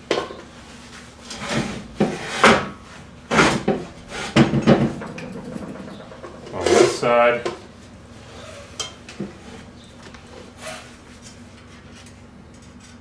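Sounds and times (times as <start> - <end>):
metal knocking and clanking: 1.2 - 7.7.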